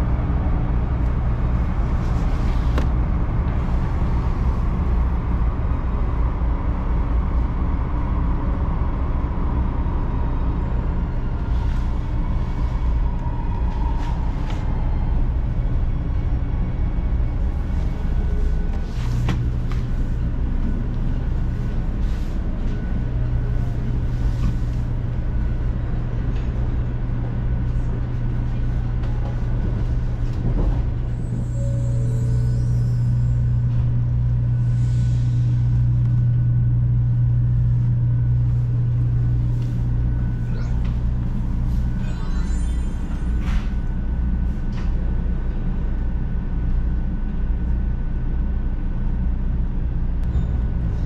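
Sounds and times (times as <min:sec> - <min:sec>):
train cabin rumble and hum: 0:00.0 - 0:51.0.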